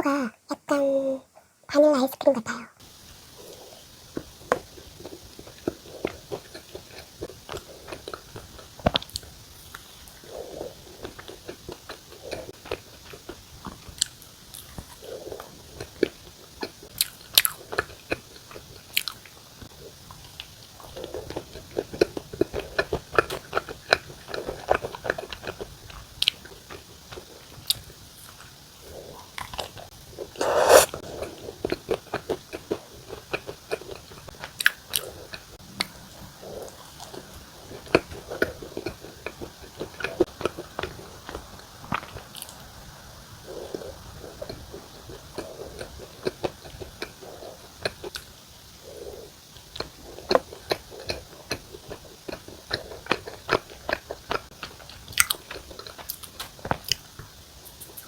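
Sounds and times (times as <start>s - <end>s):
chewing and wet mouth sounds: 2.8s - 58.0s
loud bite into bread: 30.4s - 31.0s.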